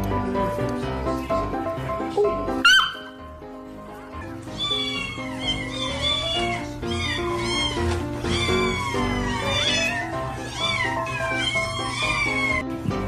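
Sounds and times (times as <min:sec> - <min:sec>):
cat meowing: 0:04.2 - 0:12.6.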